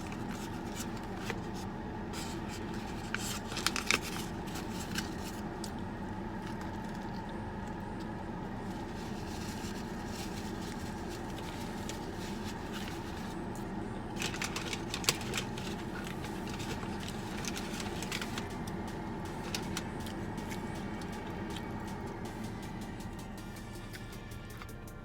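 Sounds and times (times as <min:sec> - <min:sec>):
car engine idling: 0:00.0 - 0:25.0
sharp clicks and crackles: 0:14.2 - 0:22.2.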